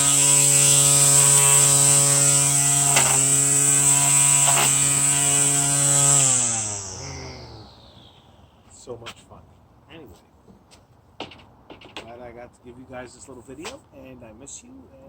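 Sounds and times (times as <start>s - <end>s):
string trimmer motor whining: 0.0s - 8.6s
trimmer line knocks: 1.2s - 5.1s.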